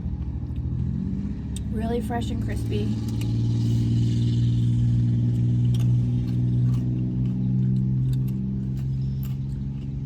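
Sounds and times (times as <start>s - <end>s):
car engine idling: 0.0s - 10.0s
chewing tortilla chips: 3.0s - 10.0s.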